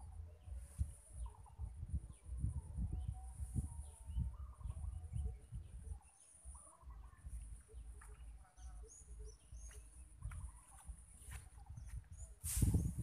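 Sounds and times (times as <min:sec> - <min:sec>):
birds calling and chirping: 0:00.0 - 0:13.0.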